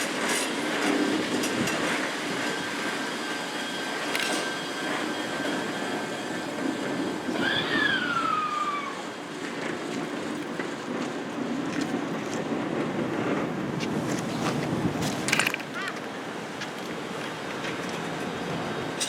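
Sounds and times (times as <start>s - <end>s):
electric train rumbling: 0.0s - 19.0s
train brake squeal: 2.3s - 9.2s.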